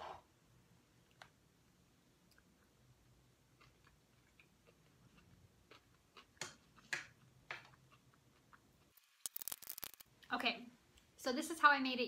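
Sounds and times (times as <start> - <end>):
quiet chewing: 3.5 - 10.0
wet mouth clicks: 9.0 - 10.0.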